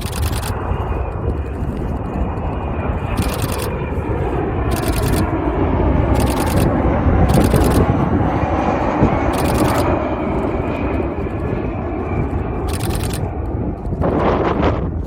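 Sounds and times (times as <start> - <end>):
camera shutter clicks: 0.0 - 0.6, 3.2 - 3.7, 4.7 - 5.3, 6.1 - 6.7, 7.3 - 7.9, 9.3 - 9.8, 12.7 - 13.3
jet engine roar: 0.0 - 15.0.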